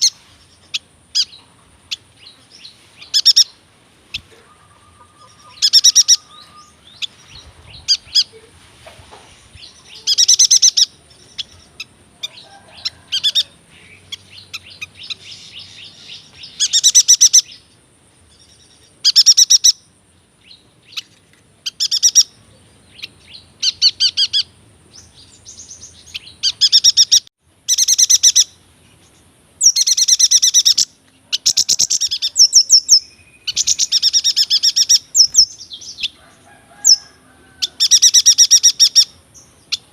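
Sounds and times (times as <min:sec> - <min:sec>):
bird trilling: 0:04.2 - 0:08.3, 0:09.8 - 0:17.6, 0:21.6 - 0:22.4, 0:23.0 - 0:24.5, 0:29.6 - 0:39.9.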